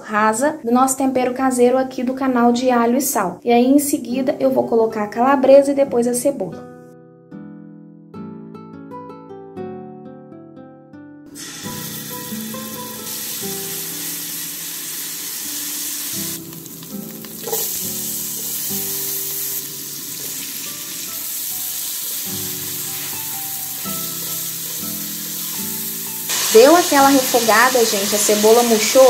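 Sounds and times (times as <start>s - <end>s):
oil sizzling in a pan: 11.3s - 29.0s.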